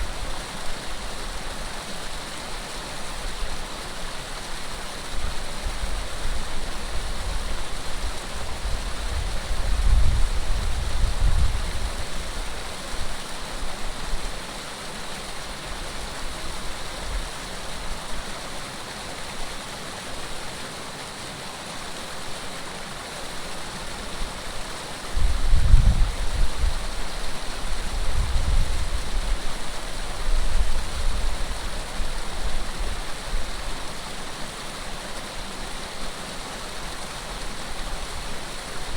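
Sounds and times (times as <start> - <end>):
running water rushing: 0.0 - 38.9
wind buffeting microphone: 8.5 - 12.2, 25.2 - 27.0, 27.7 - 29.5.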